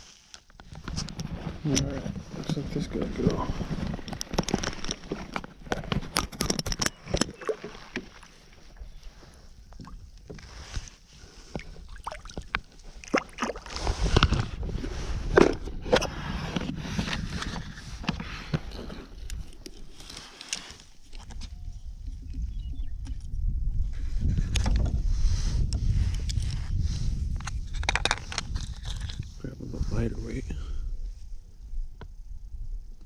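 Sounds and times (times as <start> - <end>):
water sloshing against kayak: 0.6 - 21.4.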